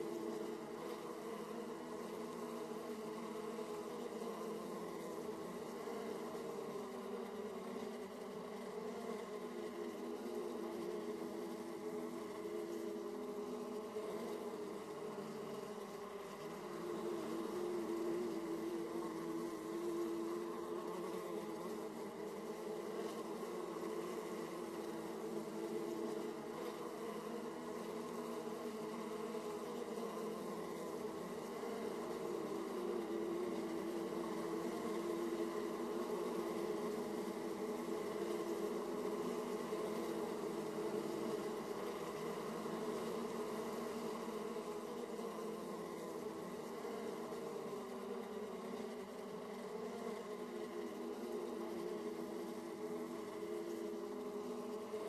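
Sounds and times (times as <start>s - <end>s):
honeybees buzzing: 0.0s - 55.0s.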